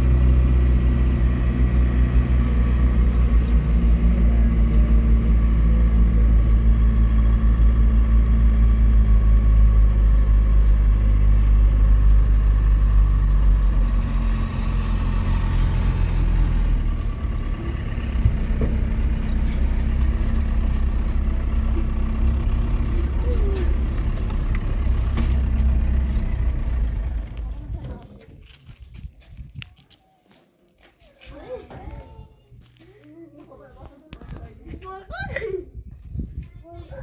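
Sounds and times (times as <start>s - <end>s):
motor vehicle droning: 0.0s - 28.3s.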